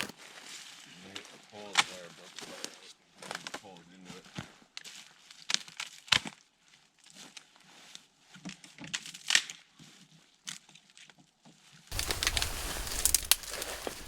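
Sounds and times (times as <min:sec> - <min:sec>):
rustling and scraping handling: 0:11.9 - 0:14.0.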